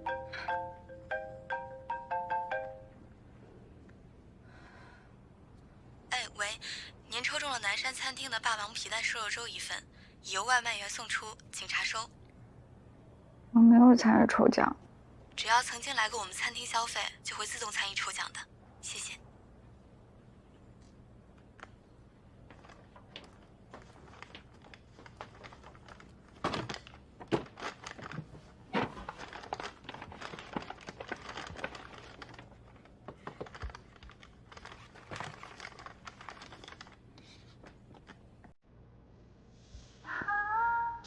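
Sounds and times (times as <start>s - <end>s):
faint room hum: 0.0s - 41.0s
crinkling rustles: 21.4s - 38.2s.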